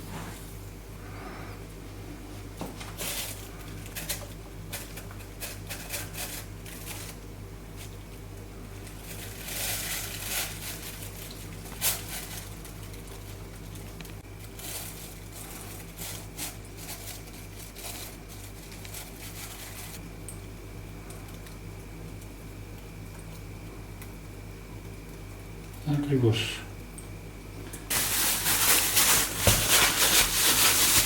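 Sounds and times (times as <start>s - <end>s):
steady low hum: 0.0s - 31.0s
plastic bag rustling and crinkling: 2.8s - 4.9s, 5.7s - 8.0s, 8.7s - 20.0s, 27.9s - 31.0s.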